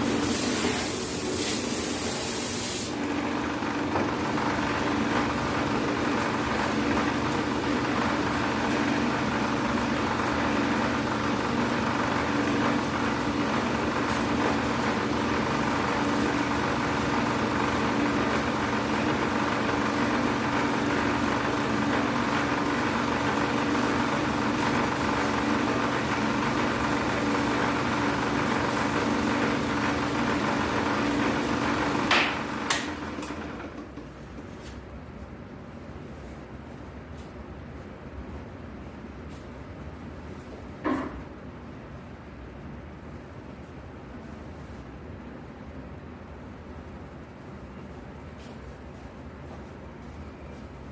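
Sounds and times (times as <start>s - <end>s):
sanding machine humming: 0.0s - 34.1s.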